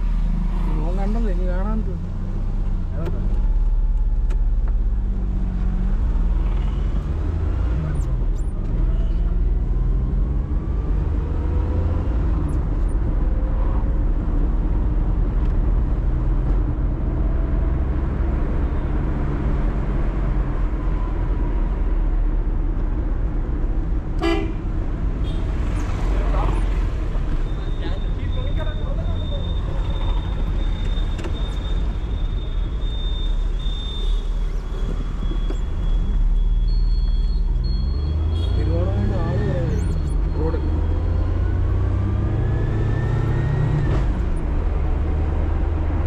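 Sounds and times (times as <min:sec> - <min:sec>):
road noise: 0:00.0 - 0:46.0
short car horn toot: 0:24.2 - 0:24.6.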